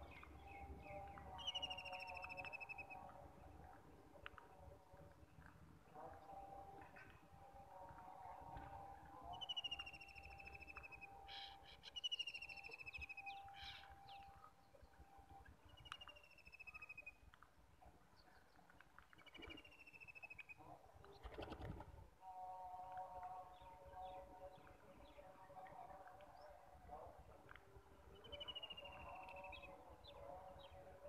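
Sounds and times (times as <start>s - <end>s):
bird calling with falling trill: 0.0s - 3.0s, 9.2s - 15.0s.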